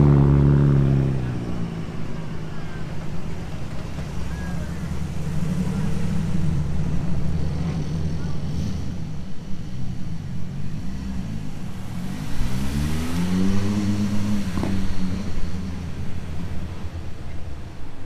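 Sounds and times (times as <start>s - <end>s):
car engine revving: 3.4s - 17.0s.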